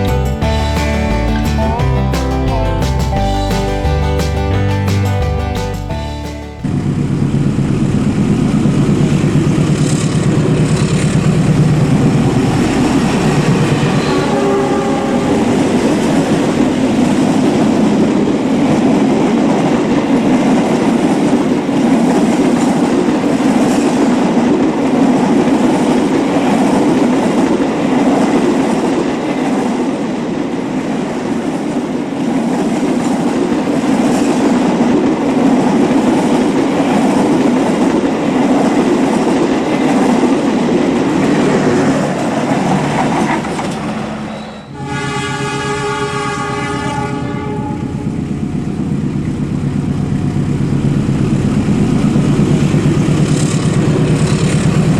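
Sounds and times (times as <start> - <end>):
train rolling: 0.0 - 54.9
locomotive horn: 12.3 - 16.2, 44.1 - 48.3
wheels clattering over rail joints: 31.6 - 44.7, 49.2 - 54.9.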